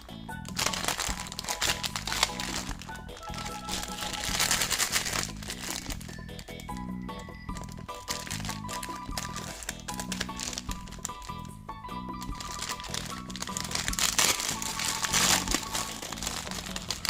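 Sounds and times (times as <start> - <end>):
background music: 0.0 - 17.0
candy wrappers crinkling: 0.3 - 17.0.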